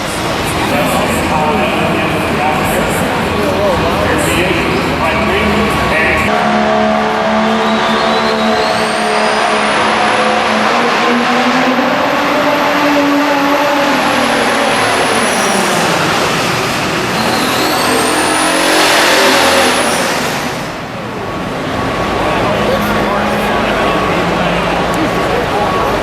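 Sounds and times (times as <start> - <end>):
diesel truck engine at full load: 0.0 - 26.0
high whistle: 6.6 - 10.2, 17.1 - 18.9.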